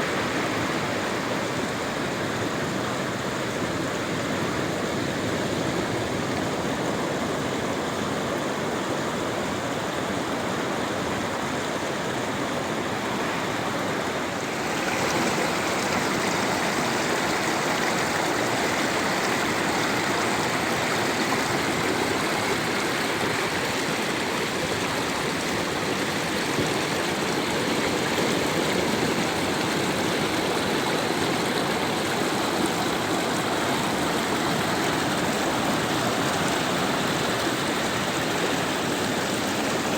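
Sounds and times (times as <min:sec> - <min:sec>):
sea surf washing: 0:10.9 - 0:39.9.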